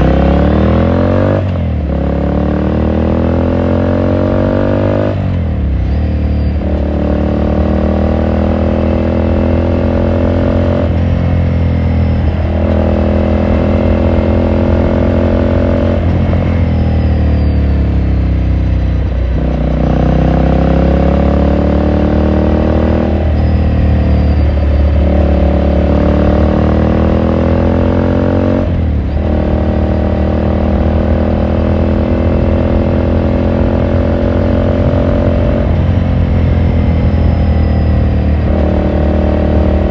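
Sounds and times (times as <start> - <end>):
motorcycle engine shifting gears: 0.0 - 39.9.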